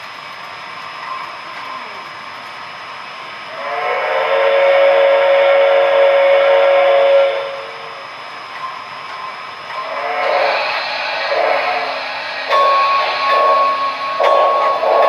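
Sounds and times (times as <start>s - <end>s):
steady steam hiss: 0.0s - 15.0s
chime steam whistle blast: 3.5s - 7.9s, 9.8s - 15.0s.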